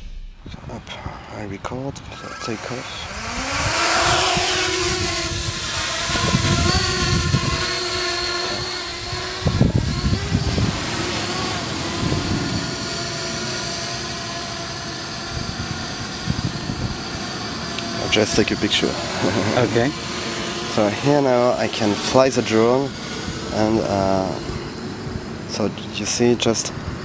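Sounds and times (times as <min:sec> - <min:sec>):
quadcopter propellers whining: 0:02.1 - 0:27.0
wind buffeting microphone: 0:03.1 - 0:13.3, 0:15.2 - 0:25.6, 0:26.7 - 0:27.0.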